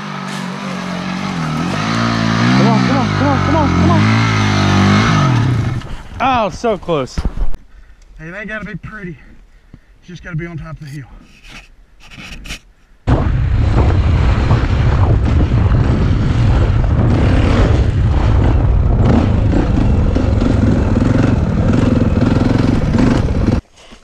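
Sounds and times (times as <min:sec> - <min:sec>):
dirt bike engine running: 0:00.0 - 0:06.6, 0:13.1 - 0:23.6.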